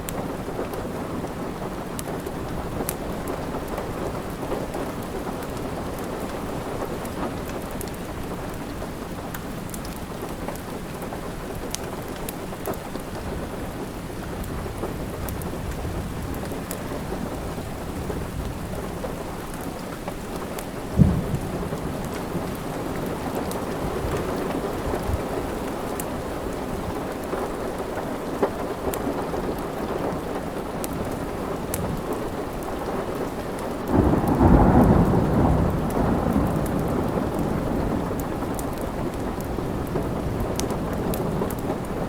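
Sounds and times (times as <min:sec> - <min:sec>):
steady rain: 0:00.0 - 0:42.0
low thunder rumble: 0:20.9 - 0:25.7, 0:33.9 - 0:42.0
wood fire crackling: 0:35.8 - 0:42.0.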